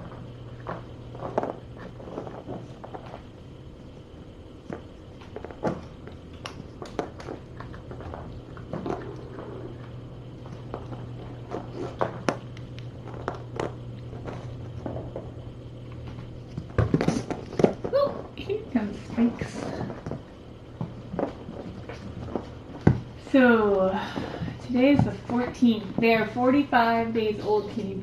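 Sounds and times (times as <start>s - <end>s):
kittens crunching kibble: 0.0s - 23.3s
steady low hum: 0.0s - 28.0s.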